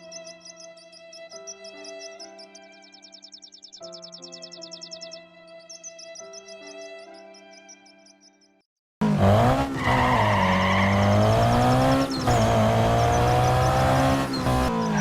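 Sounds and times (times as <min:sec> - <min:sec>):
soft music: 0:00.0 - 0:08.7
vehicle engine running: 0:09.0 - 0:15.0.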